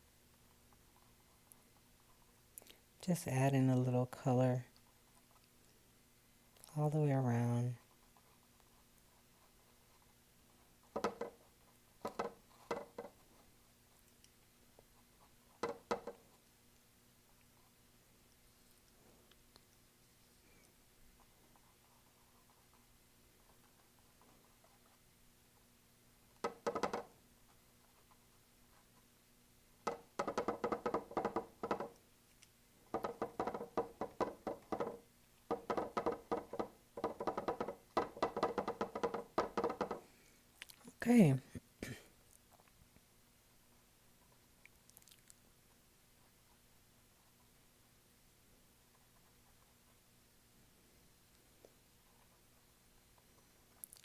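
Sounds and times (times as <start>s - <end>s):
paintbrush tapping on canvas: 10.9s - 11.4s, 12.0s - 13.2s, 15.6s - 16.2s, 26.4s - 27.1s, 29.8s - 32.0s, 32.9s - 40.1s.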